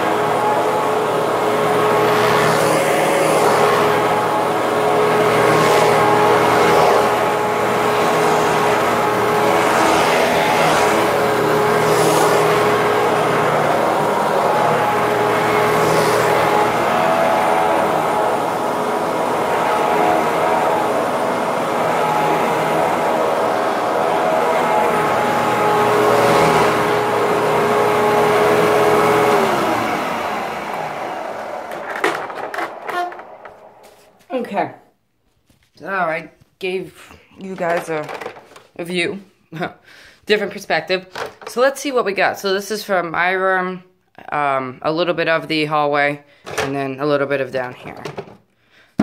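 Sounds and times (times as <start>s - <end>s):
upright vacuum cleaner running: 0.0s - 34.7s, 37.4s - 39.0s, 40.3s - 42.6s, 46.4s - 48.4s.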